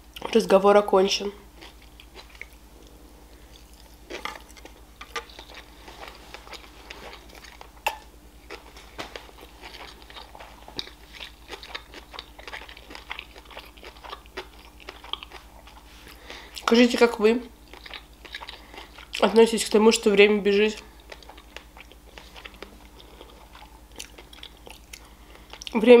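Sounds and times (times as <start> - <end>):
chewing food wet clicks: 21.1 - 25.8.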